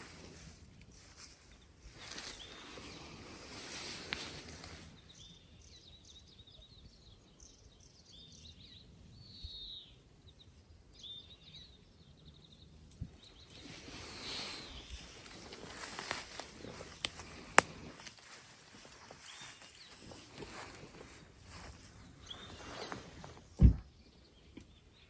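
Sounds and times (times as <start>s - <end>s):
rustling: 0.0s - 5.0s, 13.5s - 23.8s
songbird chirping: 0.1s - 25.0s.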